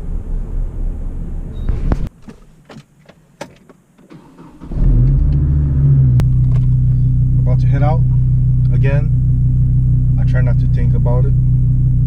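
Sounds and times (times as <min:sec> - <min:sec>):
car engine starting and running: 0:00.0 - 0:12.0
car door shutting: 0:01.6 - 0:06.9.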